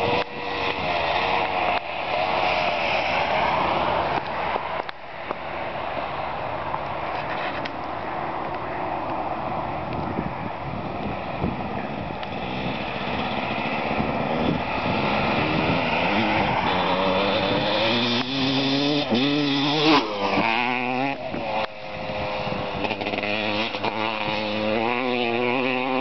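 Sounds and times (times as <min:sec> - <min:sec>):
two-stroke engine revving: 0:12.3 - 0:26.0.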